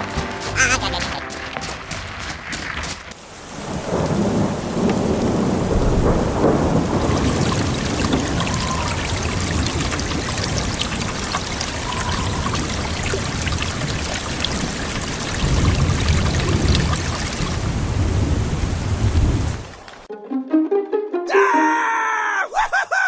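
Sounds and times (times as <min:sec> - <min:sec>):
heavy rain hissing: 0:00.0 - 0:19.7
thunder rumbling: 0:02.4 - 0:11.0.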